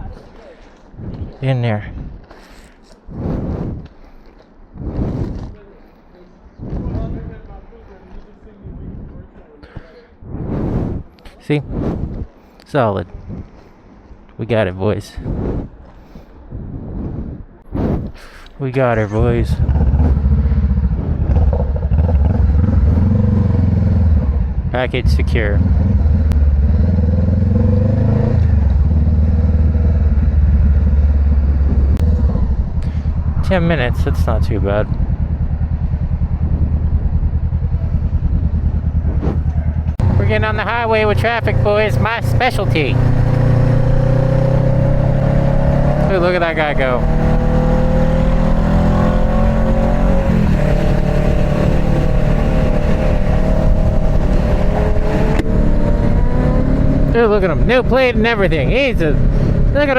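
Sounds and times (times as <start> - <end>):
wind and road noise: 0.0 - 59.9
motorcycle engine running: 19.4 - 59.9.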